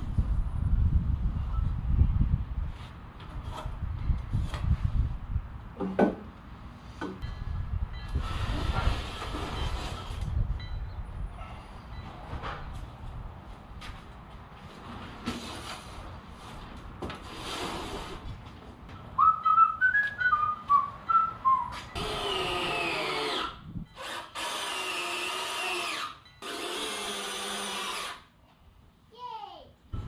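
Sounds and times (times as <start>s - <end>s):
person whistling: 19.2s - 22.0s
power drill driving screws: 22.0s - 28.3s.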